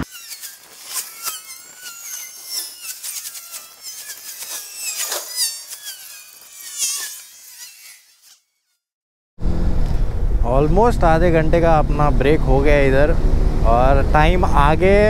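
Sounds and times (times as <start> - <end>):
fast bird trill: 0.1 - 8.4.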